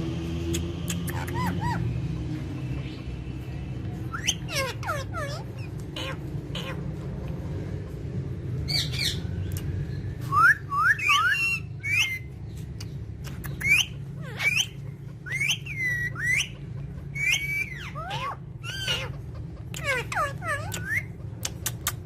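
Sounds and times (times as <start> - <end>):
parrot whistling: 10.3 - 12.3, 13.6 - 19.2, 19.8 - 21.2
sharp clicks: 20.7 - 22.0.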